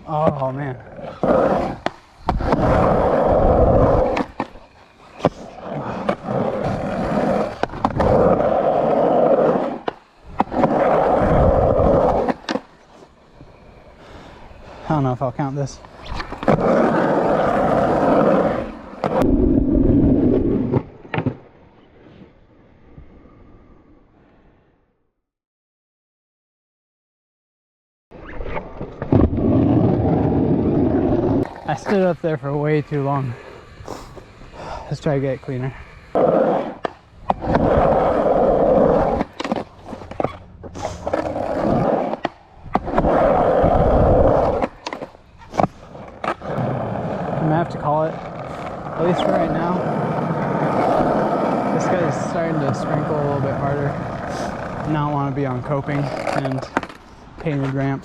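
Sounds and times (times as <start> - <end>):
skateboard wheels rolling on concrete: 0.0 - 24.8, 28.1 - 58.0.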